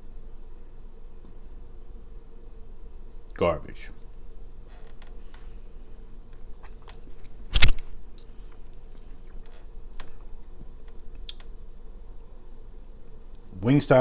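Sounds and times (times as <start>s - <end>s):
loud thump or crunch: 7.5s - 7.9s.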